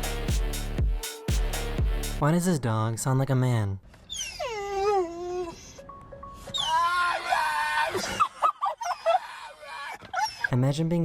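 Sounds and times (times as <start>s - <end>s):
background music: 0.0s - 2.2s, 5.5s - 7.5s
dog wailing and yelping: 4.1s - 5.8s, 6.4s - 10.6s.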